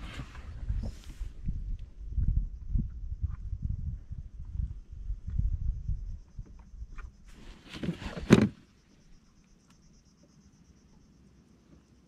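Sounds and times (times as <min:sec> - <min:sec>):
insect trill: 0:02.4 - 0:12.0
rustling noise: 0:07.0 - 0:08.6.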